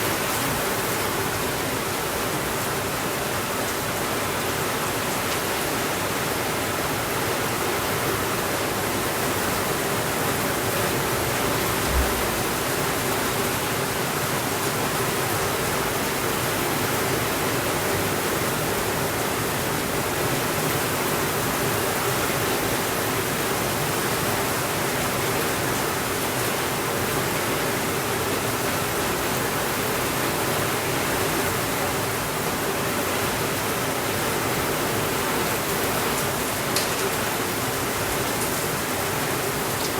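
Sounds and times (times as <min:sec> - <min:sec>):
steady rainfall hiss: 0:00.0 - 0:39.9
brief low thump: 0:11.7 - 0:12.7.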